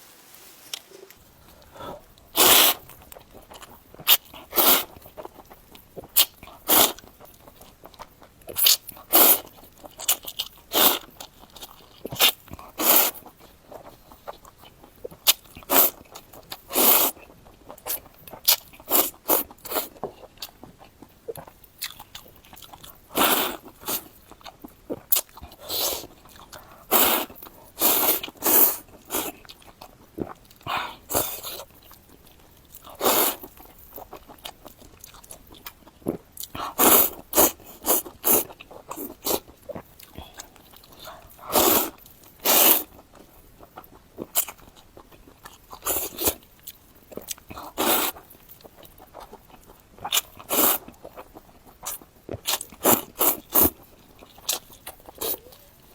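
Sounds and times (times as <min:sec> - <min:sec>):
slurping and chewing noodles: 0:00.7 - 0:55.9.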